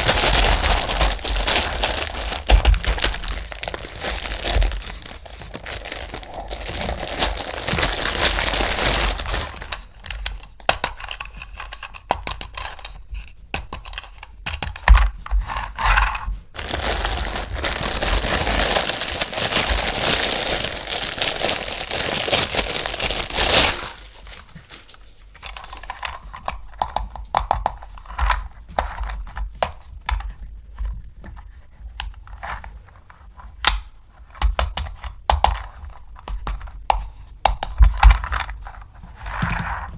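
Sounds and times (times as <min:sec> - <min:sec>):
packaging crinkling and tearing: 0:00.0 - 0:10.5, 0:16.6 - 0:26.0.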